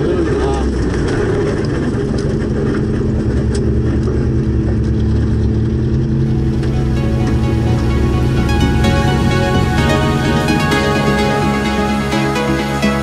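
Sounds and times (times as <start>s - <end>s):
car engine near idle: 0.0s - 13.0s
music: 6.1s - 13.0s.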